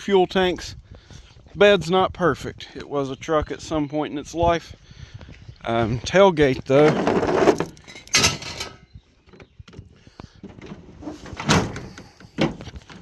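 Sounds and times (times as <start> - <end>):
tailgate metal clunks and rattles: 6.8 - 8.8, 10.4 - 13.0.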